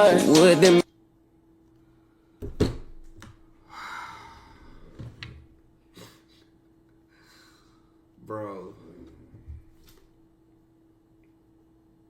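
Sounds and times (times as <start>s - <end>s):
faint steady hum: 0.0s - 12.0s
breathy exhale noise: 3.6s - 5.0s.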